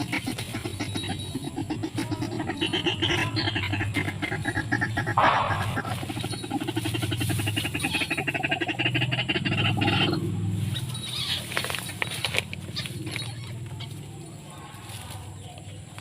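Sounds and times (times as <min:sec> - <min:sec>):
waterhen calling harsh notes: 0:00.0 - 0:11.6.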